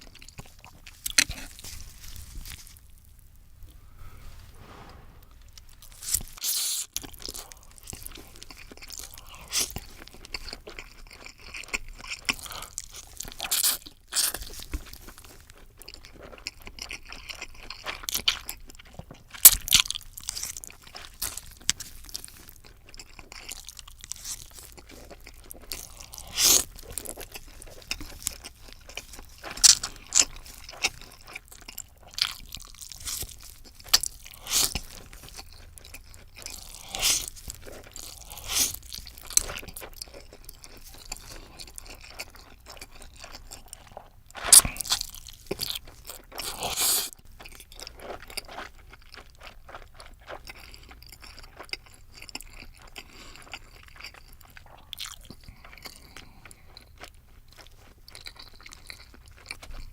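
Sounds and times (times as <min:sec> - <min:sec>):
crunchy bites and chewing: 0:00.0 - 0:03.2, 0:06.0 - 0:59.9.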